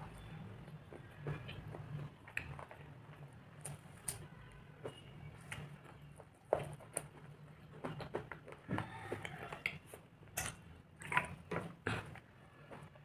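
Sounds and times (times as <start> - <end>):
chewing crunches: 5.5 - 12.9.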